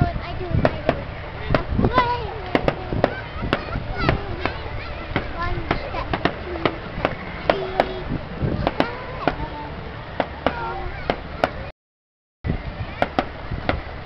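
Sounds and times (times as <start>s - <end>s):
faint voices: 0.0s - 11.7s, 12.5s - 14.0s
fireworks bangs and cracks: 0.6s - 9.6s.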